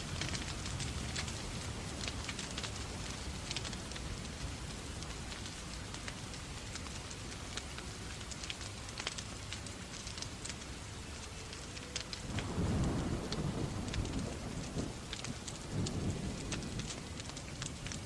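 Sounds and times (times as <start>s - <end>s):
rain hiss: 0.0s - 18.0s
wood fire crackling: 0.0s - 18.0s.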